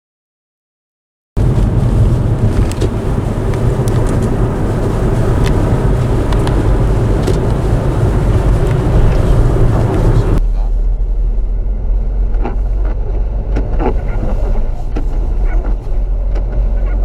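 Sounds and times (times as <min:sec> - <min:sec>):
faint clicks: 0:01.4 - 0:10.4
strong wind buffeting microphone: 0:01.4 - 0:10.4.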